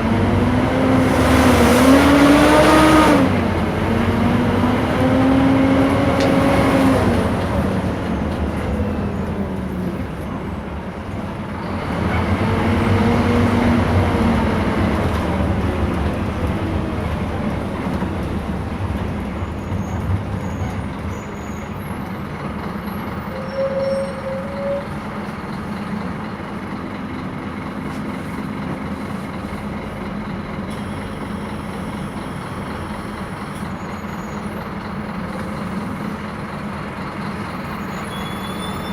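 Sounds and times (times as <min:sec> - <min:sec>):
bus diesel engine accelerating: 0:00.0 - 0:38.9
high squeal: 0:23.2 - 0:25.0, 0:33.8 - 0:34.6, 0:37.6 - 0:38.9.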